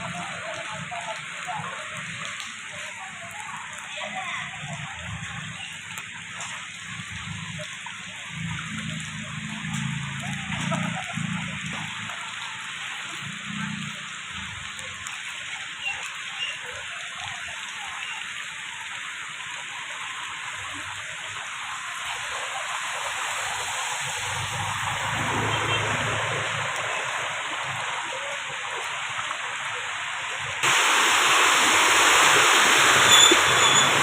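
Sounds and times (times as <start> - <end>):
water hissing: 20.4 - 34.0.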